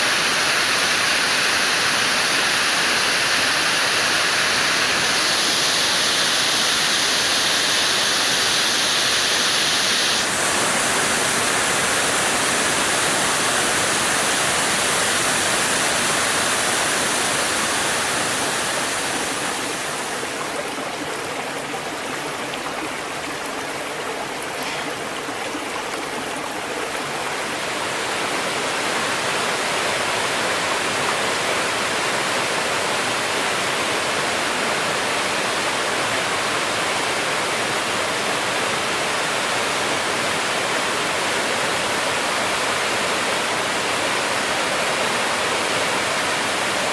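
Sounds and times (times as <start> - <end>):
water rushing: 2.6 - 31.8.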